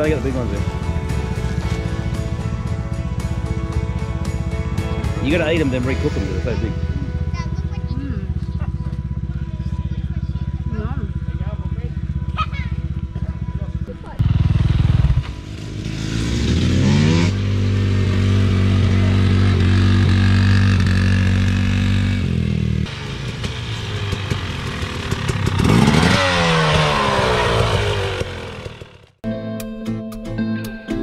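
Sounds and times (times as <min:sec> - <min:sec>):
dirt bike engine revving: 0:12.0 - 0:29.2.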